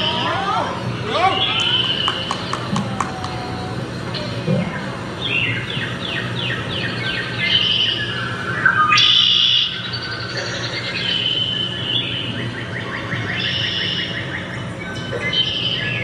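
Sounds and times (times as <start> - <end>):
bird chirps: 4.1 - 16.0.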